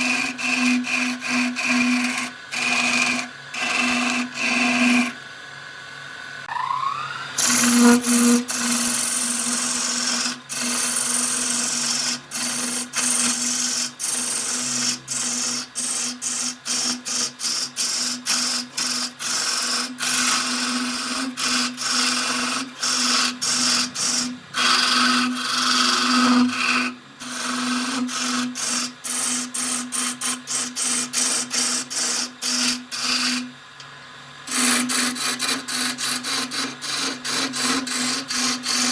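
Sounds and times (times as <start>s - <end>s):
tool scraping spinning wood: 0.0s - 5.2s, 7.0s - 33.5s, 34.5s - 38.9s
short rising whine: 6.4s - 8.1s
lathe motor humming: 6.5s - 16.0s.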